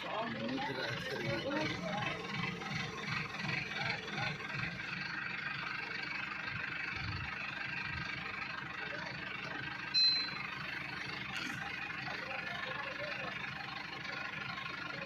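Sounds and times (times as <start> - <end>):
farm machinery engine running: 0.0 - 15.0
short high-pitched beep: 10.0 - 10.4.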